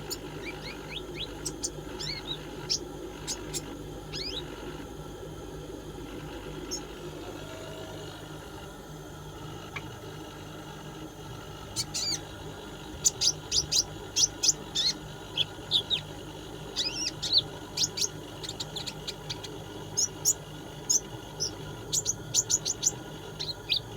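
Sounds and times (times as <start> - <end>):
bird chirps and trills: 0.0 - 4.8, 6.5 - 8.2, 11.6 - 23.9
faint steady hum: 0.0 - 23.9.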